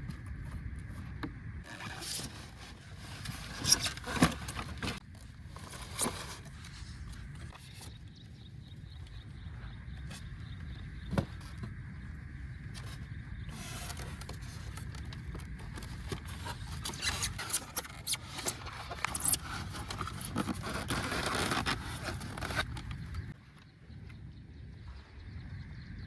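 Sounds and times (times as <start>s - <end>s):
packaging scraping and rustling: 1.7s - 8.0s, 12.8s - 23.4s.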